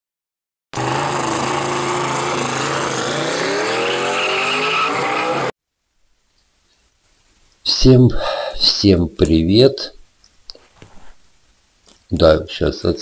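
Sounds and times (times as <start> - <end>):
car engine revving hard: 0.8 - 5.5.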